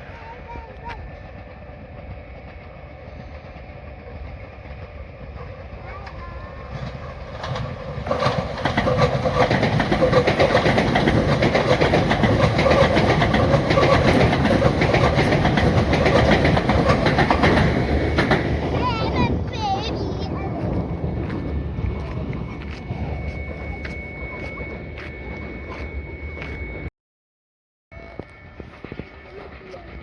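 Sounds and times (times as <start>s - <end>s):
train rushing past: 0.0s - 26.9s
wheels clacking over rail joints: 5.4s - 22.4s.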